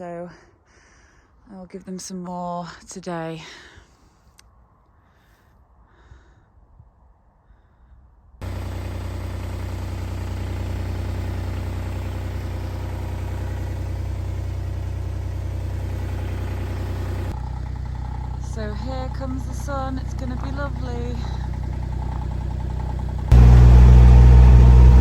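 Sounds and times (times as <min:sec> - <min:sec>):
tractor engine idling: 0:08.4 - 0:25.0.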